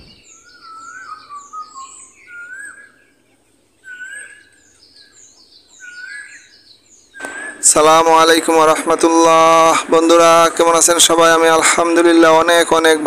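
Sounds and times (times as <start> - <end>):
high bird chirps: 0.0 - 3.2, 3.8 - 9.0
whistled birdsong phrase: 0.0 - 8.6.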